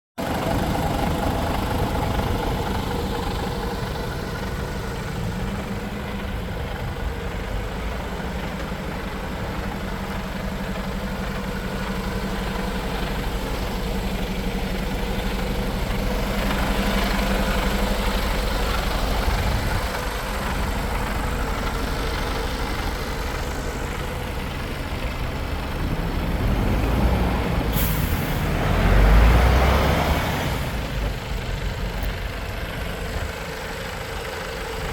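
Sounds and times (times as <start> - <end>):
truck diesel engine idling: 0.2 - 34.9
brief air hiss: 27.7 - 28.4.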